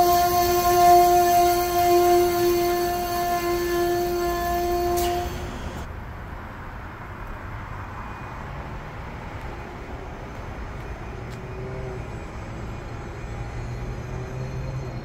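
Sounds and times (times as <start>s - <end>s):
multi-tone train horn: 0.0s - 5.9s
train wheels rumbling on rail: 0.0s - 5.9s, 9.0s - 15.0s.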